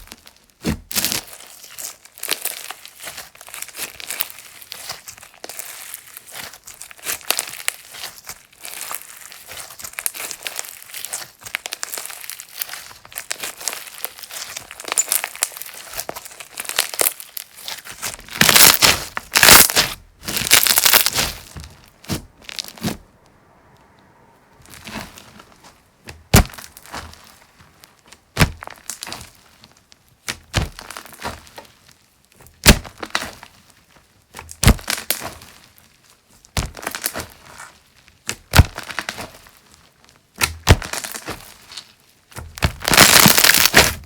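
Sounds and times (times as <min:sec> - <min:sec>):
slime squeezed by hand: 0:02.7 - 0:23.1.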